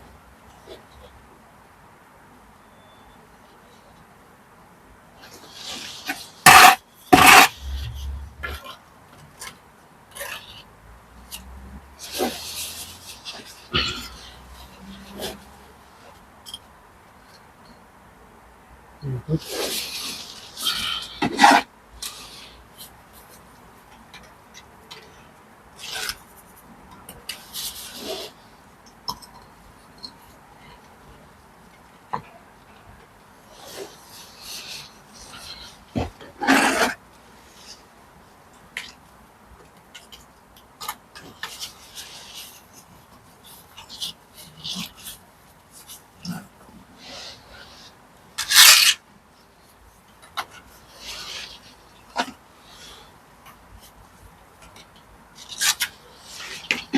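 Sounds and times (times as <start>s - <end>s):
hand tool scraping on brick: 5.5s - 8.6s, 34.6s - 36.9s
trowel scraping mortar and bricks: 5.5s - 8.7s, 12.0s - 15.6s, 19.4s - 22.6s, 33.6s - 37.7s, 47.0s - 49.0s.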